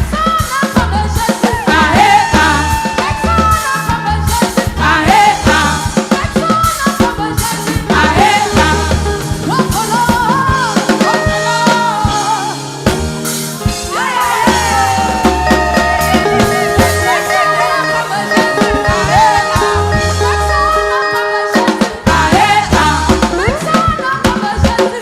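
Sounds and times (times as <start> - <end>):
person singing: 0.0 - 12.9, 13.6 - 25.0
gospel band playing: 0.0 - 25.0.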